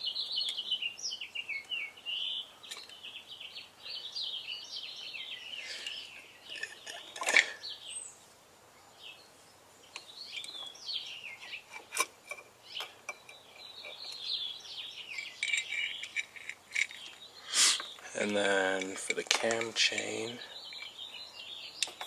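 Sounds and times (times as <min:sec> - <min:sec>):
birds chirping: 0:00.0 - 0:22.0
metal parts clinking: 0:05.8 - 0:07.6, 0:15.1 - 0:17.2.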